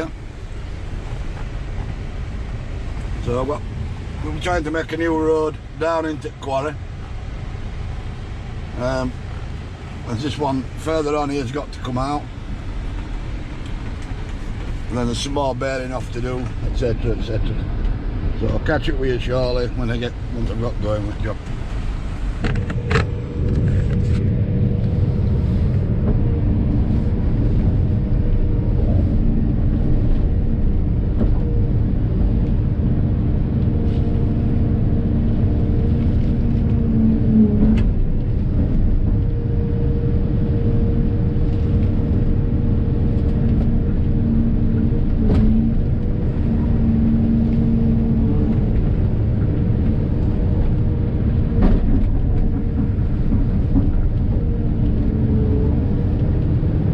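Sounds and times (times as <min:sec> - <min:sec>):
excavator diesel engine rumble: 0:00.0 - 0:56.9
excavator whine: 0:21.4 - 0:56.9.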